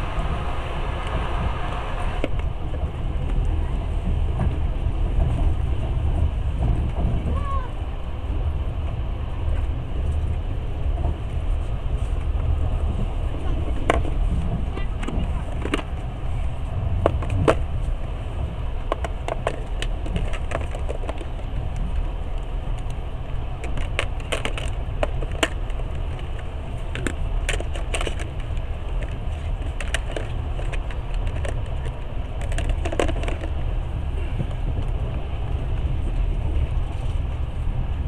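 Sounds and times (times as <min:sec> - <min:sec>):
train rumbling: 0:00.0 - 0:38.0
sharp clicks and rattles: 0:13.4 - 0:16.1, 0:17.0 - 0:17.9, 0:18.8 - 0:33.8.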